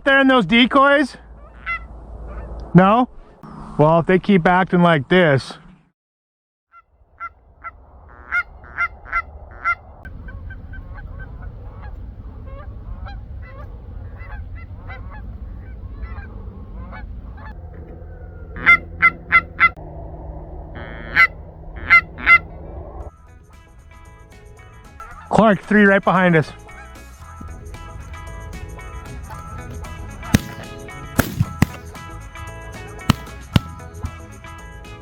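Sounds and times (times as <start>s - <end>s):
geese honking: 1.4s - 2.5s, 7.2s - 19.8s, 20.7s - 34.6s
steady low rumble: 6.9s - 34.5s.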